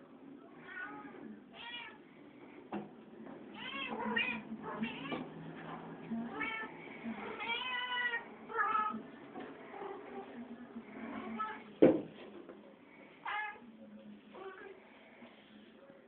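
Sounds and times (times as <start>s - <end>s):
cats meowing: 3.5s - 5.3s, 6.3s - 9.0s.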